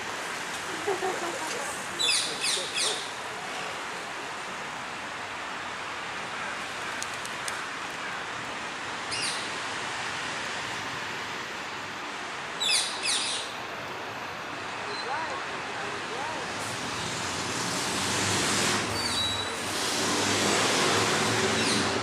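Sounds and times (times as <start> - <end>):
outdoor background hiss: 0.0 - 22.0
parakeets calling: 2.0 - 3.2, 9.1 - 9.5, 12.6 - 13.6, 21.3 - 22.0.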